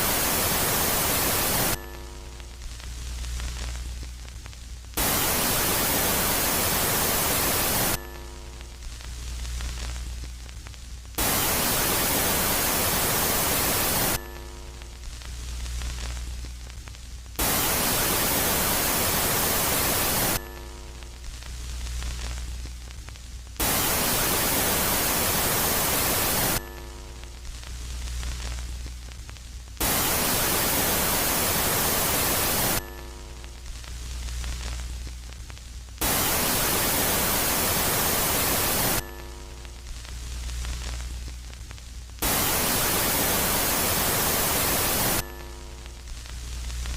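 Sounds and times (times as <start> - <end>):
loud static-like hiss: 0.0 - 46.9.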